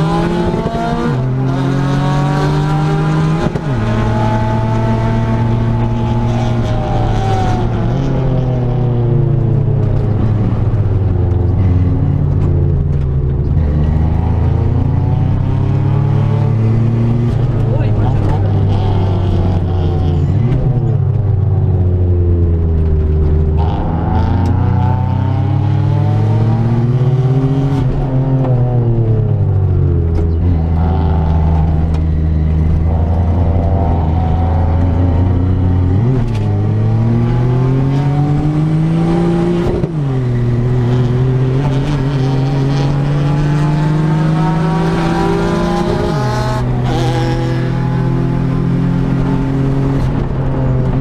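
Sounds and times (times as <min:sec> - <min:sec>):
race car engine revving: 0:00.0 - 0:51.0.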